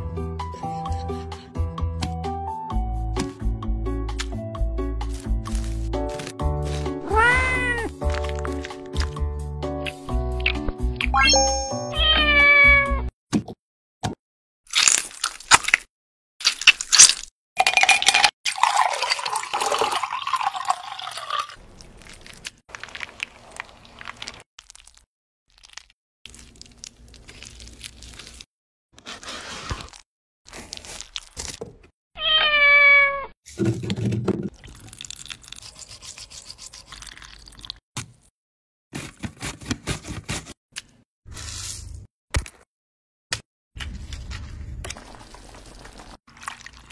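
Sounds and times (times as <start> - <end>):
background music: 0.0 - 13.0
cat meowing: 7.0 - 7.9, 11.7 - 13.0, 32.2 - 33.3.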